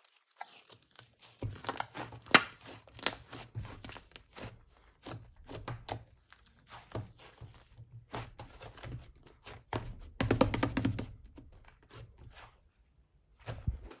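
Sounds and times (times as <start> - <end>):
slime crackling and squelching: 0.0 - 14.0.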